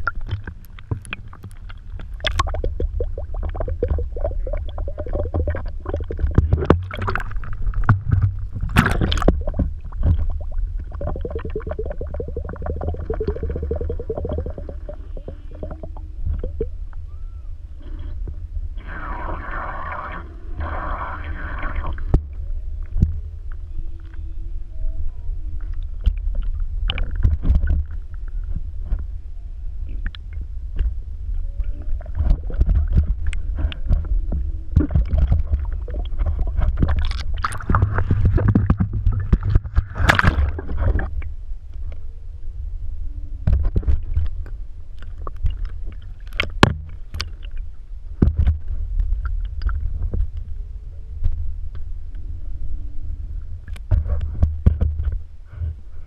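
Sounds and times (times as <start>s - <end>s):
water splashing around kayak: 0.0s - 16.8s, 31.9s - 41.4s
steady low rumble: 0.0s - 56.0s.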